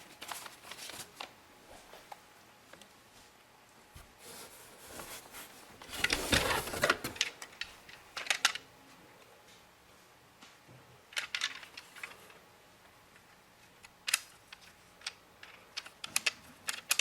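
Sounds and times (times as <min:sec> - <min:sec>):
plastic parts rattling and clicking: 0:05.8 - 0:08.6, 0:11.1 - 0:12.3, 0:13.8 - 0:17.0.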